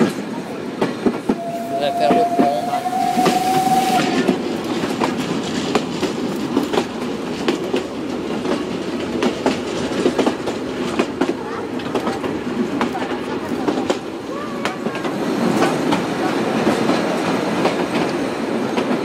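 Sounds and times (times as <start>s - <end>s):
train carriage rumble: 0.0s - 19.0s
wheels clicking over rail joints: 0.0s - 19.0s
held high tone: 1.3s - 4.4s.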